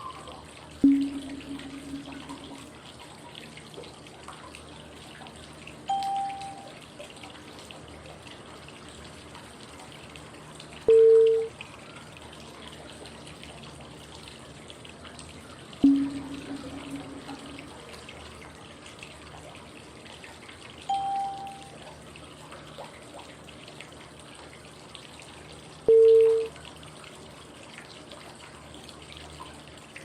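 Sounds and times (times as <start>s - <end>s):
pure cue tones: 0.0s - 2.7s, 5.9s - 6.7s, 10.9s - 11.5s, 15.8s - 17.8s, 20.9s - 21.8s, 25.9s - 26.5s
flowing water white noise: 0.0s - 3.2s, 4.1s - 22.7s.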